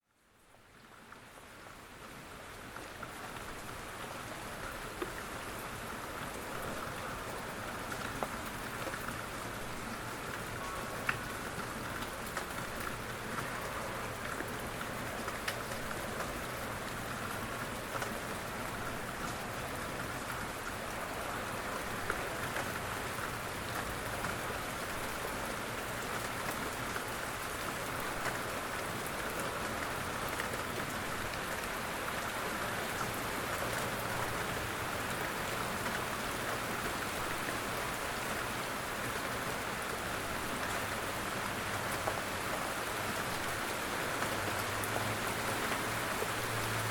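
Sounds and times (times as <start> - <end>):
steady rain falling: 0.0 - 46.9
rain drop ticks: 10.3 - 18.5.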